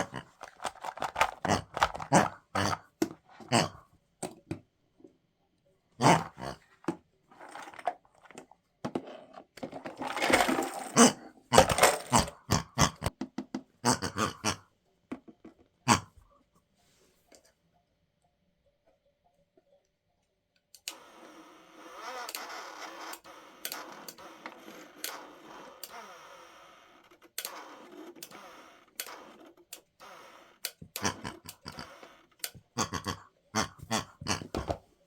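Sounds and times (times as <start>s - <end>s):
toy washing machine running: 0.0s - 2.1s, 9.6s - 12.3s
cardboard pieces clattering: 9.7s - 12.2s.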